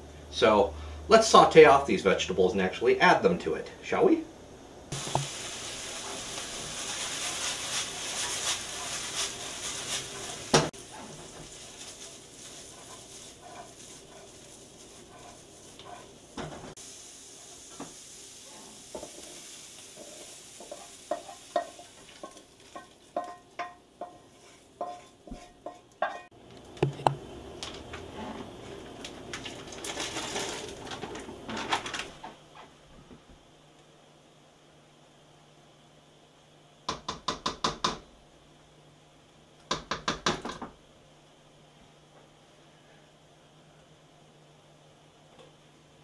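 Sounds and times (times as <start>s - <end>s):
vegetables sizzling in a wok: 4.9s - 26.4s, 27.2s - 31.6s
wooden spoon scraping a wok: 5.0s - 26.3s, 28.0s - 28.8s.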